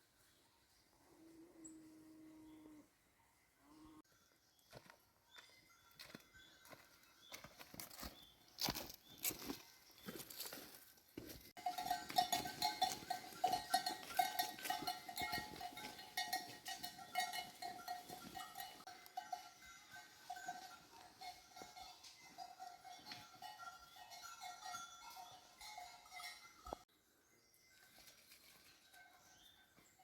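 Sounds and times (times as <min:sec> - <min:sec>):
sheep bells clinking: 0:11.5 - 0:26.9, 0:27.6 - 0:30.0.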